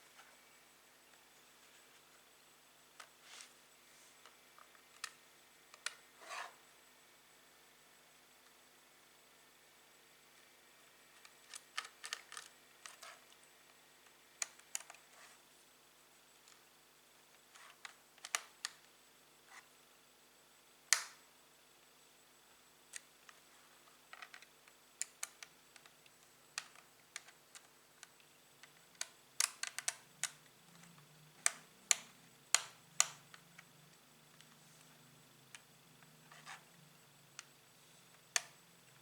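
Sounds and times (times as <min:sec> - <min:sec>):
faint hum: 0:00.0 - 0:39.0.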